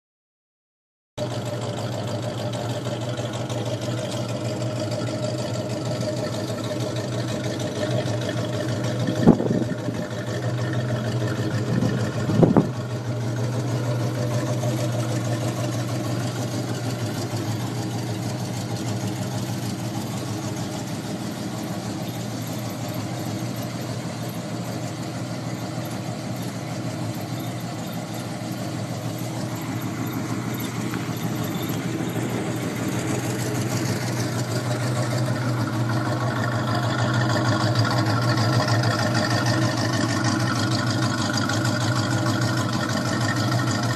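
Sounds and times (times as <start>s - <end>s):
car engine idling and revving: 1.2s - 43.9s.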